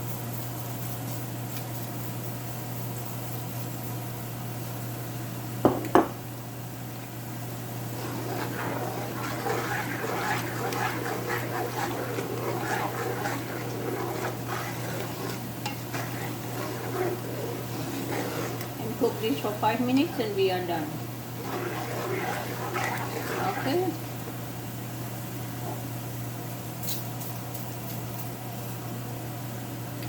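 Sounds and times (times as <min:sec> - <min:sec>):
chili flakes sizzling in oil: 0:07.4 - 0:25.6.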